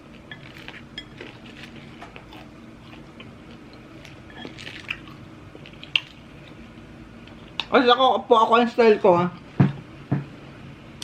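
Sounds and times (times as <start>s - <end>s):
person chewing food: 0.0s - 7.7s.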